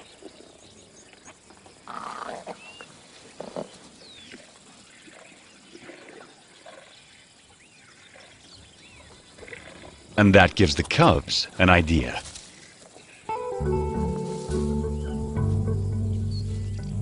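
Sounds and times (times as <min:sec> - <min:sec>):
soft rustles: 0:12.2 - 0:13.0.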